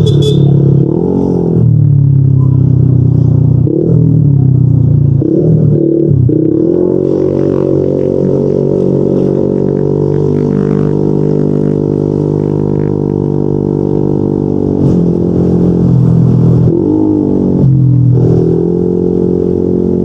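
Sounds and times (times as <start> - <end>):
scooter engine droning: 0.0 - 20.0.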